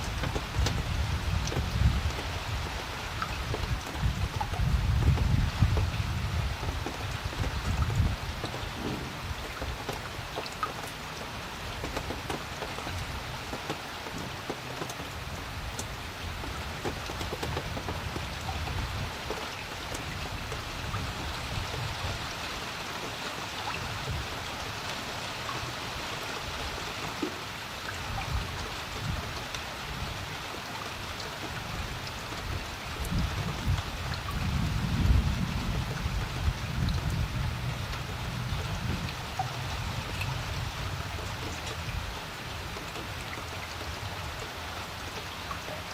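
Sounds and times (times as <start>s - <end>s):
rain pattering on water: 0.0s - 45.9s
low rumble: 8.7s - 9.6s.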